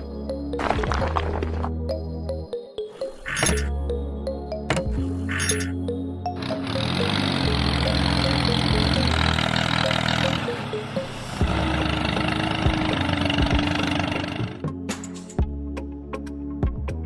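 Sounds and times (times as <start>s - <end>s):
background music with melody: 0.0s - 17.0s
motor running steadily: 6.4s - 14.6s.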